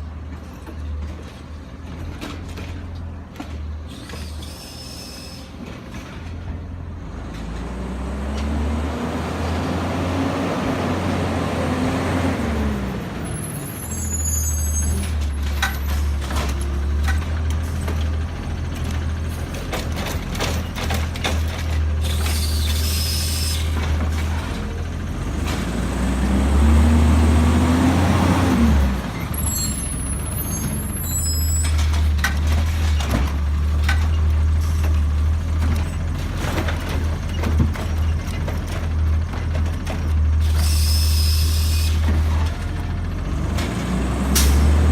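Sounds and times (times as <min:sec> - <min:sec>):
garbage truck diesel engine: 0:00.0 - 0:44.9
short high squeals: 0:03.9 - 0:05.6, 0:13.4 - 0:15.1, 0:22.0 - 0:23.8, 0:29.3 - 0:31.8, 0:40.5 - 0:42.0.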